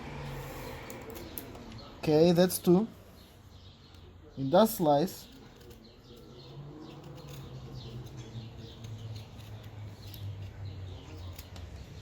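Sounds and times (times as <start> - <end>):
knife scraping wood: 5.2 - 12.0.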